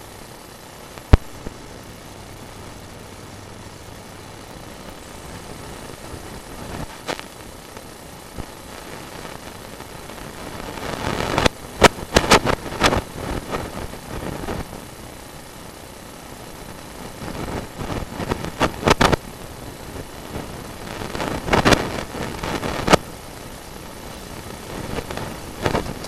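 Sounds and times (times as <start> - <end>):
camera rig humming: 14.8 - 26.0.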